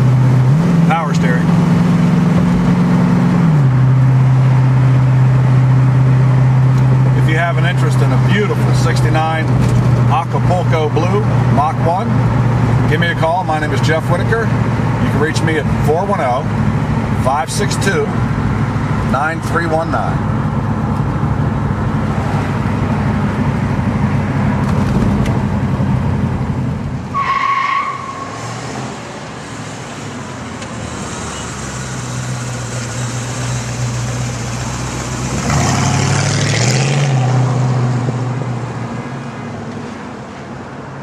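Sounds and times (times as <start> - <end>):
car engine running: 0.0 - 27.1.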